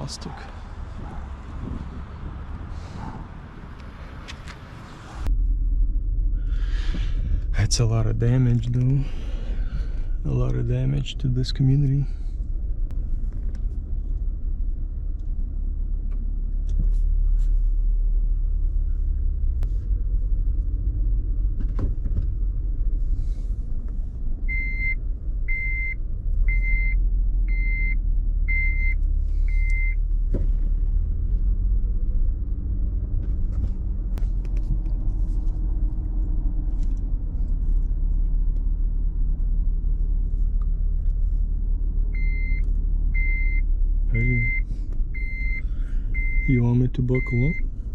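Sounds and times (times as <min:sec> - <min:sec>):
car engine rumble: 0:00.0 - 0:47.9
road noise inside car: 0:00.0 - 0:47.9
seatbelt reminder chime beeping: 0:44.2 - 0:44.6, 0:46.2 - 0:47.6.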